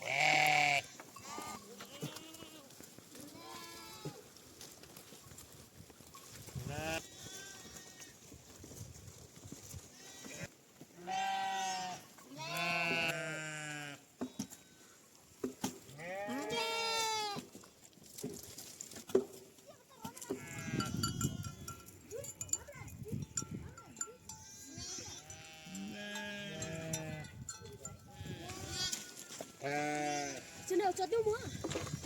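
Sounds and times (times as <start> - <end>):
sheep bleating: 0.0 - 4.2, 6.6 - 8.2, 9.9 - 15.0, 15.9 - 17.4, 20.3 - 21.7, 24.3 - 27.4, 28.2 - 31.6.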